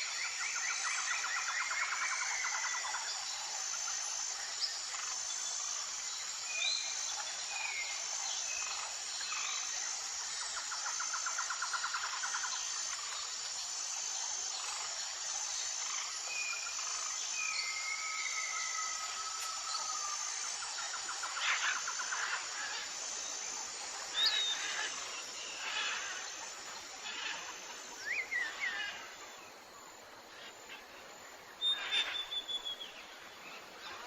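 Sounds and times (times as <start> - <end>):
insects droning: 0.0 - 34.0
birds whistling and trilling: 31.6 - 33.0.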